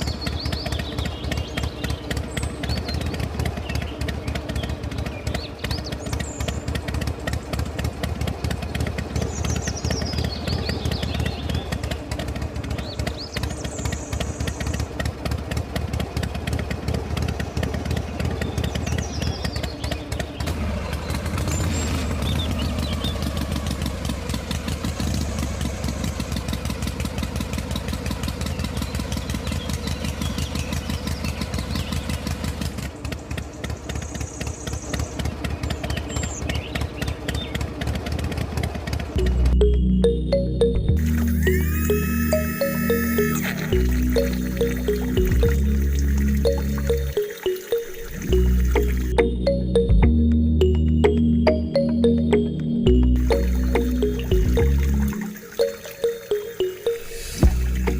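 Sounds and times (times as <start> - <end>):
small engine running: 0.0 - 50.0, 52.8 - 57.9.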